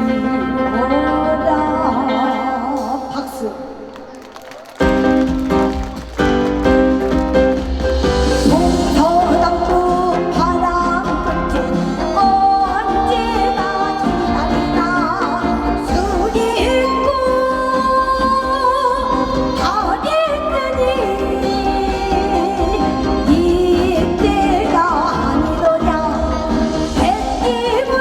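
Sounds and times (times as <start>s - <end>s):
woman singing folk song: 0.0s - 4.0s, 8.4s - 28.0s
instrumental accompaniment: 4.8s - 28.0s.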